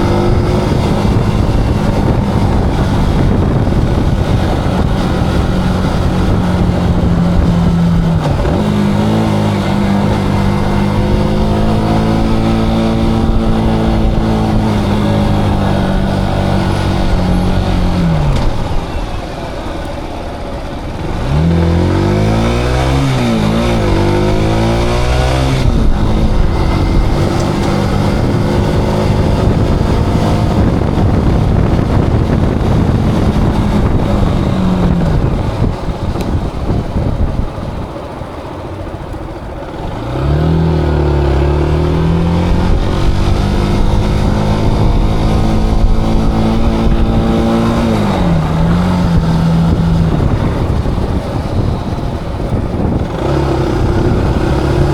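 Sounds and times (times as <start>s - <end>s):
motorcycle engine revving: 0.0s - 54.9s
wind rush: 0.0s - 54.9s.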